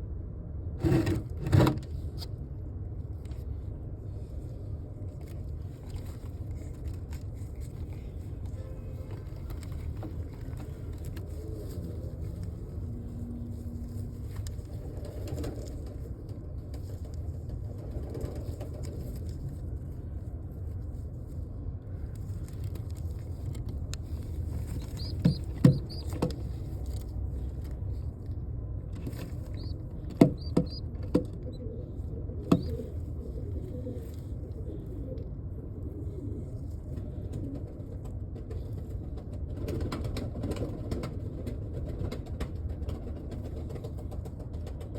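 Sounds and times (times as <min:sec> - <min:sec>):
steady low rumble: 0:01.9 - 0:39.7
sharp knocks and taps: 0:24.8 - 0:26.5, 0:29.6 - 0:31.4, 0:32.5 - 0:32.7.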